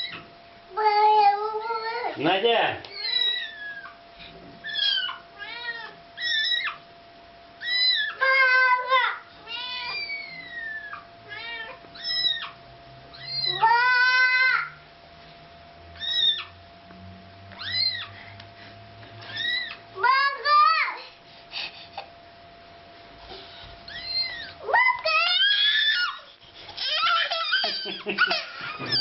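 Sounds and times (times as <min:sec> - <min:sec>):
kitten mewing: 0:02.9 - 0:04.0, 0:04.6 - 0:06.8, 0:13.2 - 0:14.2, 0:16.0 - 0:16.5, 0:17.6 - 0:18.1.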